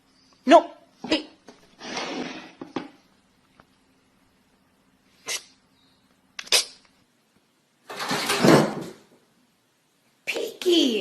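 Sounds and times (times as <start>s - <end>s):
pet sneezing puffs: 1.8s - 2.6s, 5.2s - 5.6s
faint hum: 2.5s - 7.8s.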